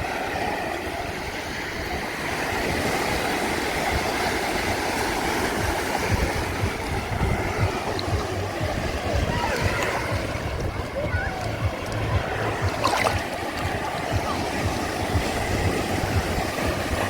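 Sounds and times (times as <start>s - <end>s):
sea waves washing on shore: 0.0s - 17.0s.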